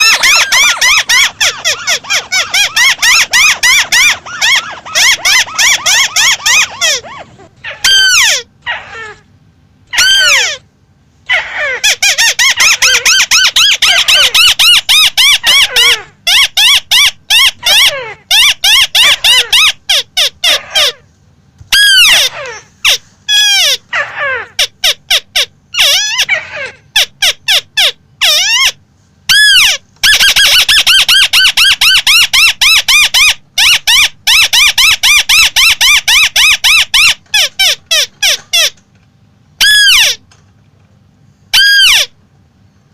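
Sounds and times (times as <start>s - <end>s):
crake calling: 0.0s - 7.1s.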